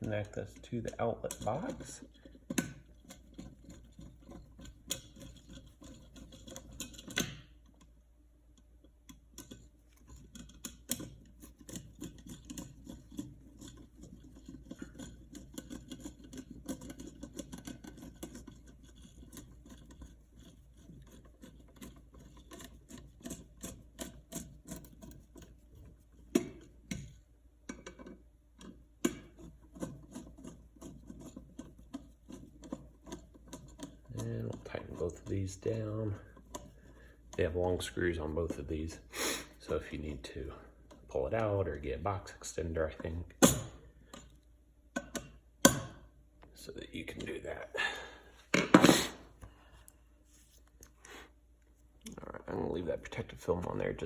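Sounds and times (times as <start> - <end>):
clicks and scrapes of receptacle: 0.0 - 7.9, 8.6 - 25.6, 26.2 - 37.6.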